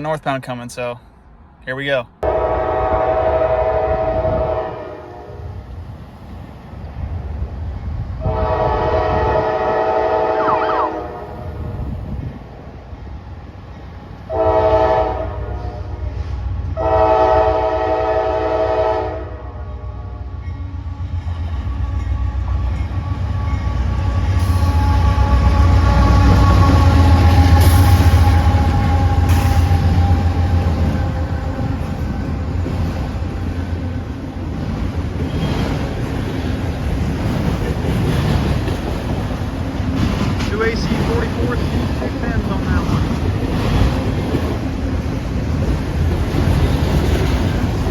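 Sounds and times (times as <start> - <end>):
train passing rumble: 0.0 - 47.9
train horn blasts: 2.2 - 5.6, 8.2 - 11.6, 14.3 - 16.2, 16.8 - 20.3, 21.8 - 31.8.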